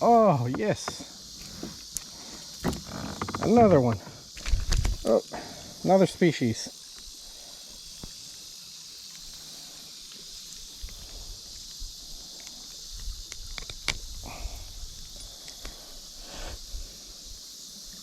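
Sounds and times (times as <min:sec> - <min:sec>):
high buzz of insects: 0:00.0 - 0:18.0
close clicks knocks and rustles: 0:00.4 - 0:05.0, 0:12.4 - 0:14.2.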